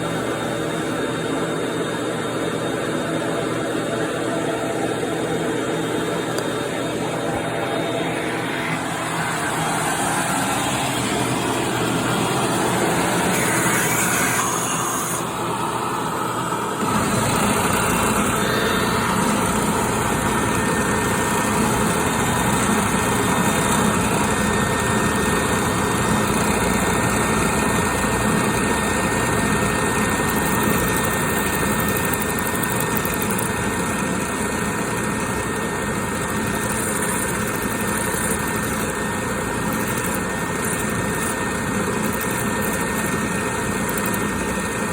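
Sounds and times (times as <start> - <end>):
thin high tone: 3.9 - 22.6
bandsaw running: 7.0 - 15.9, 16.8 - 44.9.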